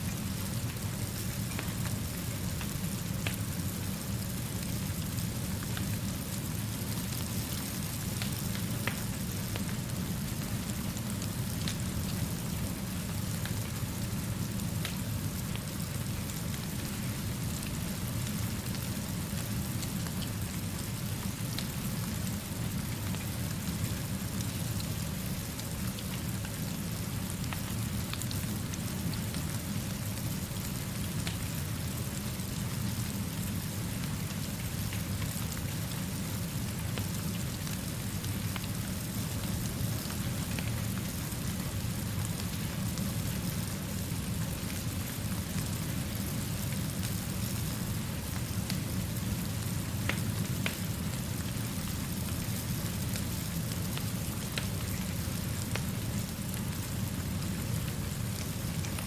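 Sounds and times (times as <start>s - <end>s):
steady rainfall: 0.0s - 59.0s
raindrop ticks: 50.1s - 50.8s.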